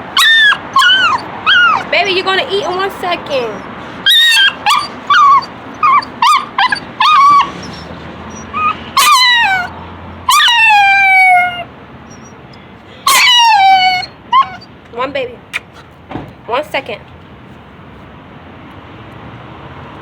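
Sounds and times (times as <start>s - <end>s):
dog yipping: 0.0s - 12.4s, 13.0s - 14.7s
dog whining: 0.0s - 14.7s.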